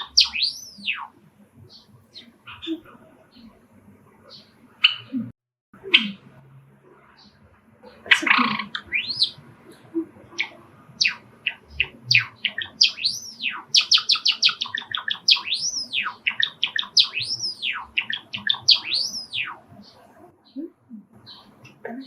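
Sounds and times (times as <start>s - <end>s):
sparrow singing chirps and whistles: 0.0s - 1.1s, 8.4s - 9.4s, 10.4s - 20.6s.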